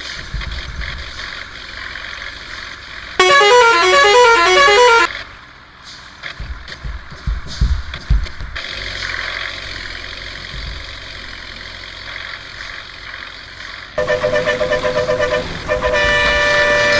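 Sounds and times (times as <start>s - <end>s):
low vehicle noise: 0.0s - 16.9s
musical vehicle horn tune: 3.2s - 5.1s, 14.0s - 16.9s.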